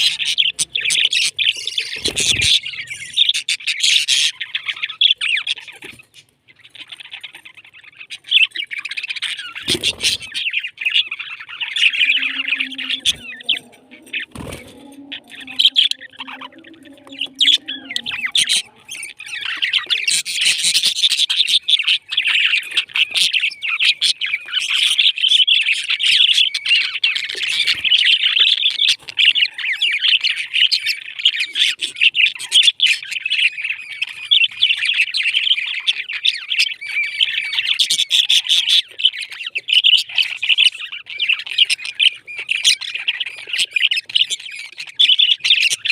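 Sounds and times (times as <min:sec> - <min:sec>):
parrots chirping and chattering: 0:00.0 - 0:45.9
faint low steady tone: 0:11.8 - 0:19.5.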